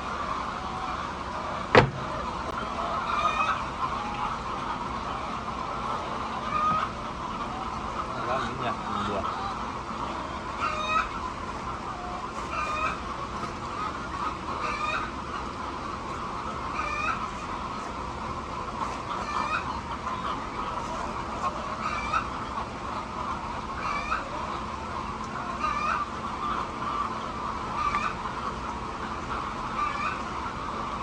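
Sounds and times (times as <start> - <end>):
hens clucking: 0.0 - 31.0
repeating hen call: 19.1 - 22.5, 29.7 - 31.0.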